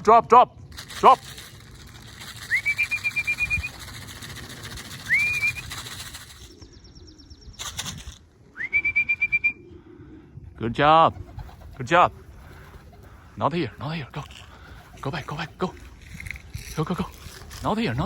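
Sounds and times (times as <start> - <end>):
trilled pea whistle blasts: 2.5 - 3.8, 5.1 - 5.7, 8.6 - 9.6.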